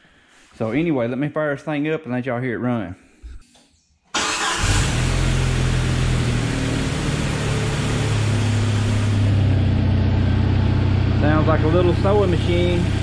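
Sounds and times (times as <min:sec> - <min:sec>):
car engine idling: 0:04.2 - 0:13.0.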